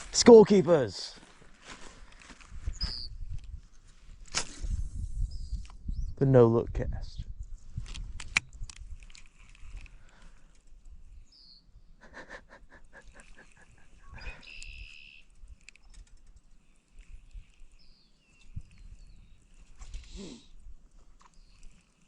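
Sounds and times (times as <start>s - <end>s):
bird chirps: 2.7s - 3.2s, 11.2s - 12.0s, 13.4s - 16.1s, 17.4s - 19.5s
sharp clicks: 7.9s - 10.6s, 14.4s - 16.4s
rapid ticking bird notes: 13.2s - 19.6s.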